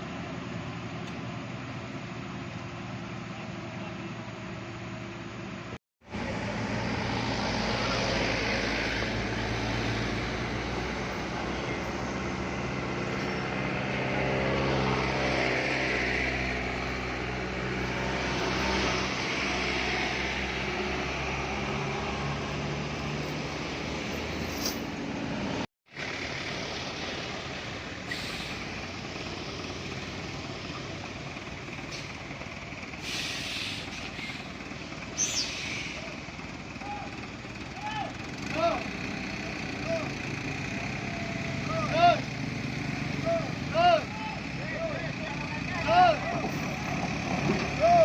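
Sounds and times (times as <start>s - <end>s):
road noise: 0.0s - 48.0s
truck diesel engine running: 25.0s - 48.0s.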